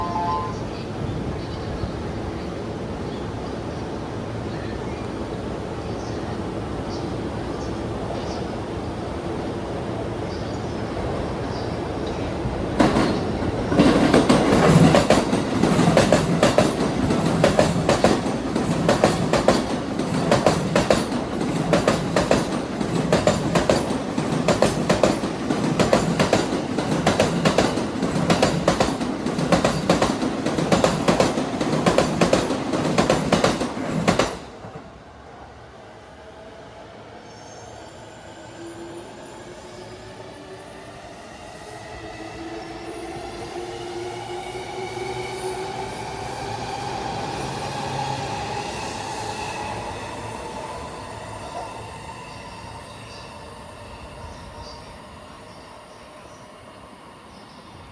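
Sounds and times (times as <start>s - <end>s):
train wheels clacking over rail joints: 12.8s - 34.8s.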